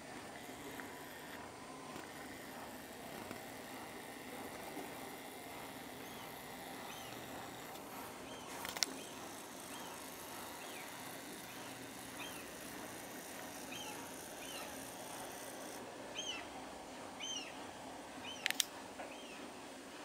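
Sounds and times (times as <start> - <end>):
faint outdoor background noise: 0.0 - 20.0
small bird chirping: 8.3 - 12.6, 13.6 - 14.8
sharp click: 18.4 - 18.7.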